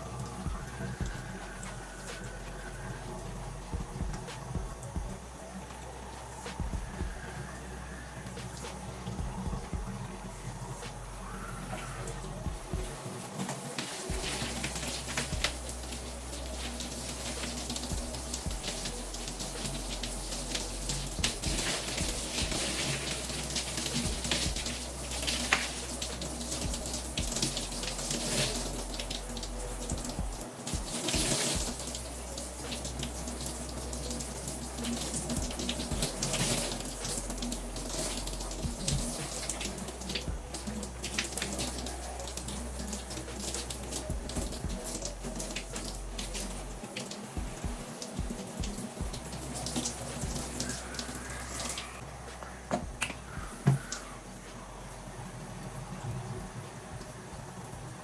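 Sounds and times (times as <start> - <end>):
tap water splashing: 12.5 - 54.1.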